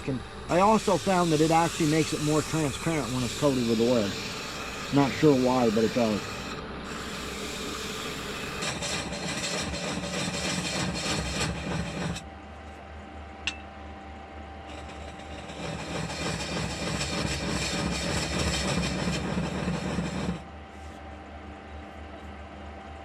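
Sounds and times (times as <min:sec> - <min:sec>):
lathe faint whine: 0:00.0 - 0:23.0
hand rubbing oil into spinning wood: 0:00.5 - 0:12.2, 0:14.7 - 0:21.1.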